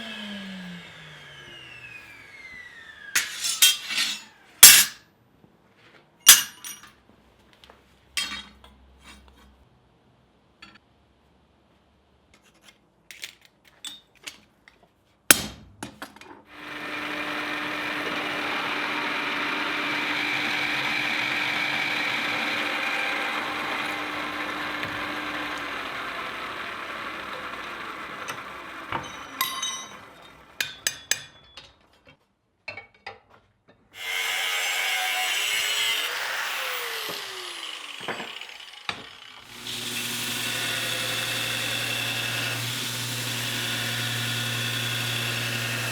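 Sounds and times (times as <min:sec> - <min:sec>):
power tool running: 0:00.0 - 0:05.0, 0:16.5 - 0:30.6, 0:34.0 - 0:45.9.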